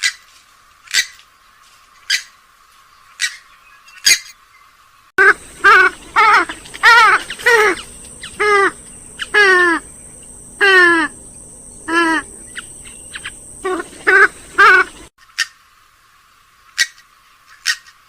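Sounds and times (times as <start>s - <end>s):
harsh bird calls: 3.0s - 15.6s.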